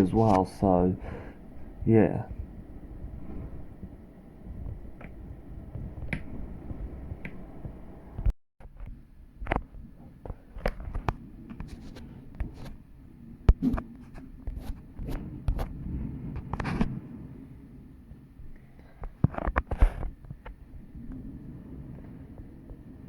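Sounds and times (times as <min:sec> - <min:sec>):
storm wind buffeting microphone: 0:00.0 - 0:23.0
sharp clicks and taps: 0:06.0 - 0:06.3.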